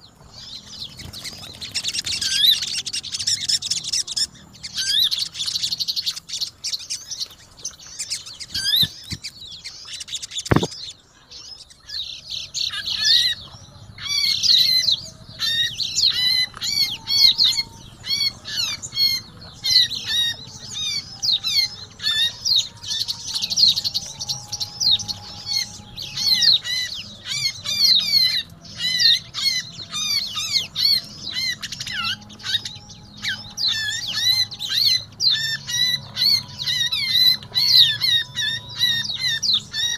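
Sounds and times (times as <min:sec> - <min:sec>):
birds chattering and chirping: 0:00.0 - 0:39.9
thump: 0:10.5 - 0:10.8.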